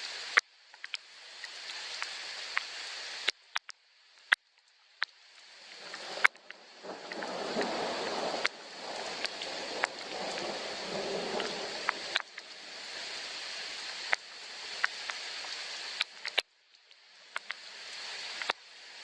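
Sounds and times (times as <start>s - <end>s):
soft rain falling: 0.0s - 19.0s
low rumble: 5.7s - 12.8s.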